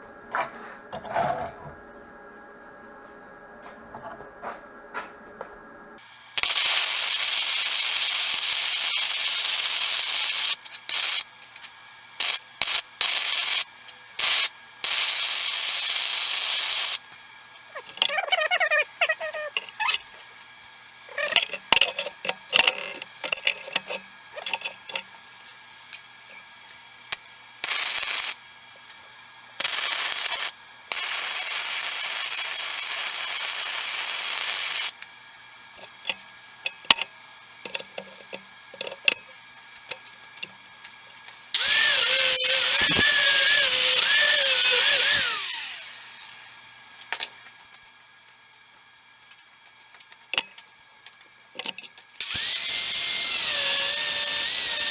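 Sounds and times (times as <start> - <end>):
electric arc welding hiss: 6.0 - 28.8, 29.4 - 35.0, 41.4 - 46.6, 52.2 - 54.9
angle grinder whine: 6.0 - 47.6, 51.5 - 54.9.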